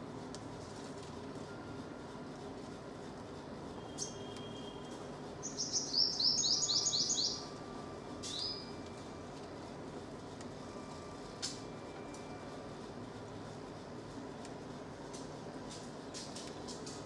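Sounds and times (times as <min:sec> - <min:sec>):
bird calling: 0:05.4 - 0:07.5.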